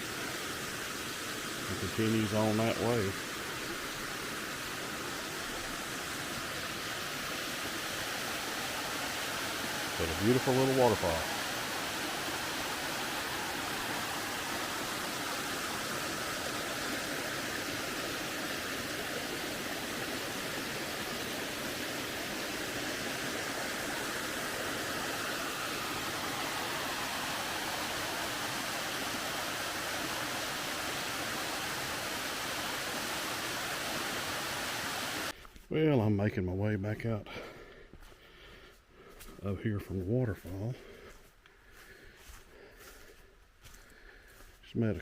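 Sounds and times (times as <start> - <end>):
waterfall splashing: 0.0 - 35.3.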